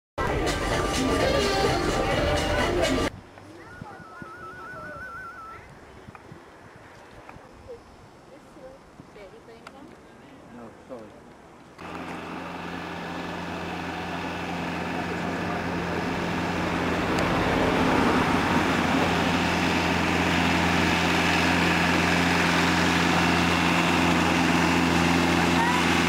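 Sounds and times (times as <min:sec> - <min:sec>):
vehicle engine running: 0:11.8 - 0:26.0.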